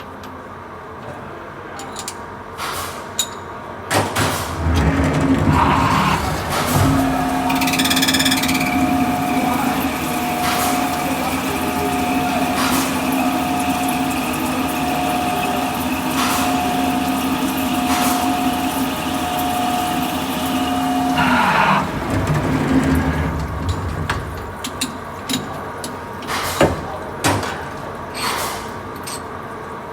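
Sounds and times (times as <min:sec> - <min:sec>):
line boring machine humming: 0:04.4 - 0:26.2.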